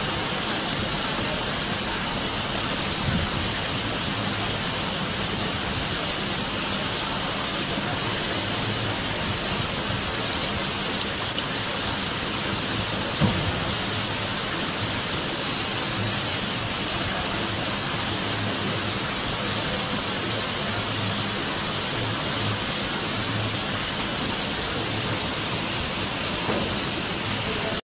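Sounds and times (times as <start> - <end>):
steady rushing hiss: 0.0 - 27.8
brief knock: 13.2 - 13.6, 26.5 - 26.8.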